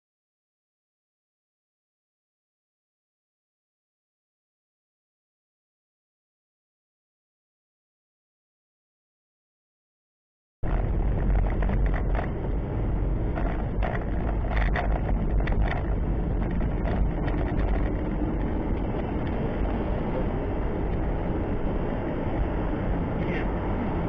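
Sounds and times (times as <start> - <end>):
engine and road rumble: 10.6 - 24.0
light clicks and rattles: 10.7 - 12.6, 13.3 - 19.8.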